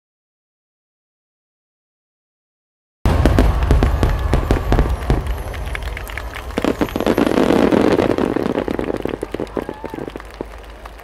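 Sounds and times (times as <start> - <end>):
firework shells bursting: 3.1 - 10.7
crowd cheering and applauding: 3.1 - 11.0.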